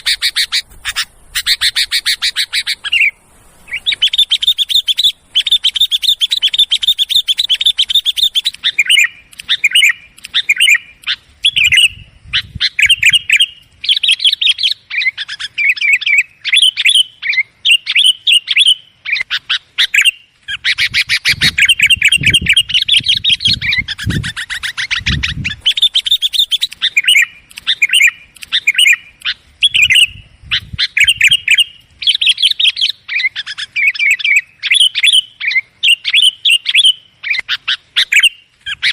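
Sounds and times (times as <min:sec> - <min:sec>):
bulbuls chattering: 0:00.0 - 0:13.6.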